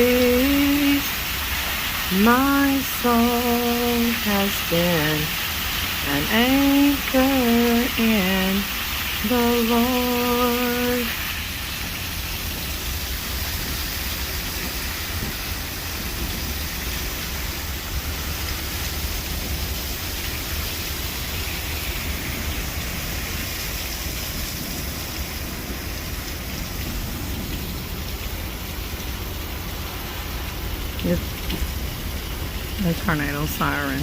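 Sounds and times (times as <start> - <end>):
heavy rain hissing: 0.0 - 34.0
low thunder rumble: 21.2 - 29.8.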